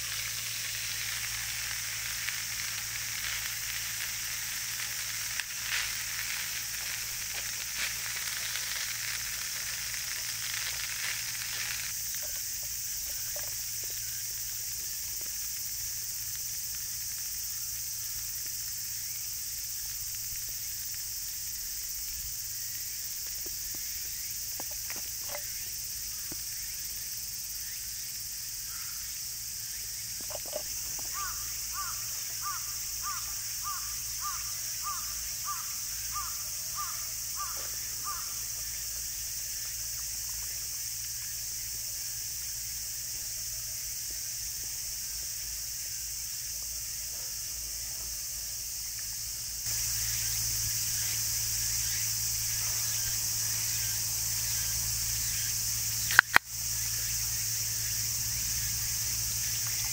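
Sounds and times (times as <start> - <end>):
frying sizzle: 0.0 - 47.0, 48.2 - 59.9
high outdoor hiss: 0.0 - 59.9
bird calling: 30.2 - 38.8.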